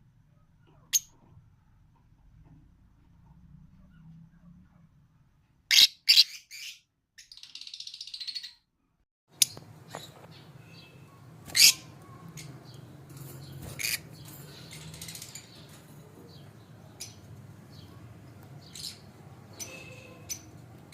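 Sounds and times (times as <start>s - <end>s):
lovebirds chirping and squeaking: 5.7s - 8.6s, 9.4s - 20.9s.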